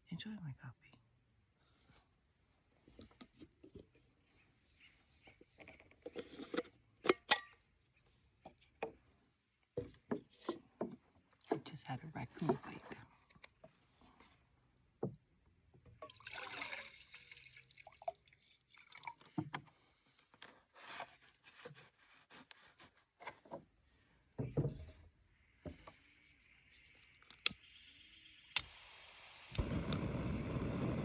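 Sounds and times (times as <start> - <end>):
camp gear clicks and knocks: 5.3 - 7.6
gas stove hissing: 28.5 - 31.0.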